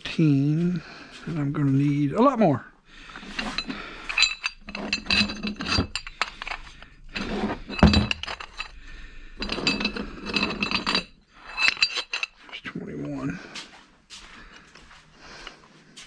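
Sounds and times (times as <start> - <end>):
small metal hardware clinking: 3.2 - 8.8, 9.4 - 12.6.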